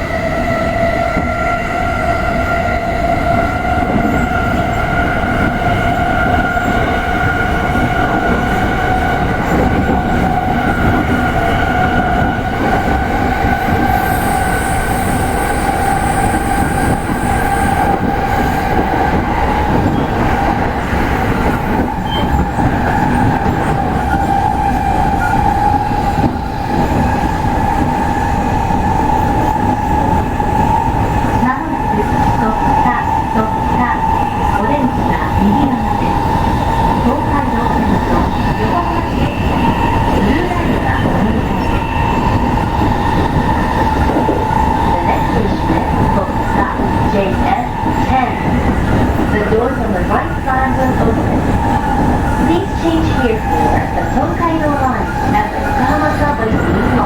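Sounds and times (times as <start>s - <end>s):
train wheels singing on rail: 0.0s - 57.0s.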